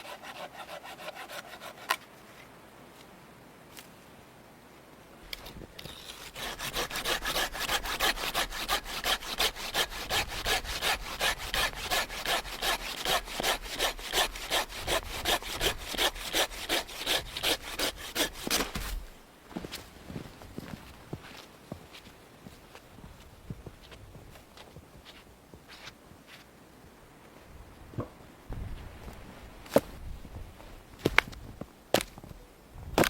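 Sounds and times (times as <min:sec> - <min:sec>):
hand saw cutting wood: 0:00.0 - 0:02.1, 0:05.8 - 0:19.0.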